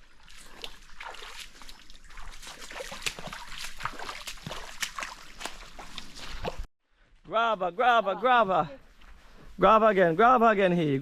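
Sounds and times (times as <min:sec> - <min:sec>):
water splashing and sloshing: 0:00.0 - 0:06.7.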